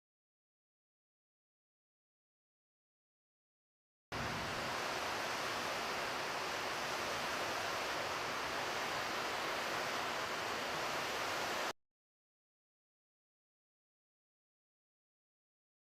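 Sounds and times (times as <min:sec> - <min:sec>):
steady rushing noise: 0:04.2 - 0:11.7.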